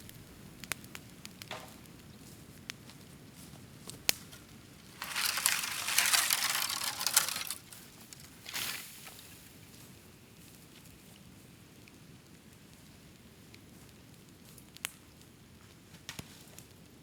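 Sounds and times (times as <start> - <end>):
bamboo cracking in fire: 0.0 - 9.7
fire crackling and rustling: 0.0 - 17.0.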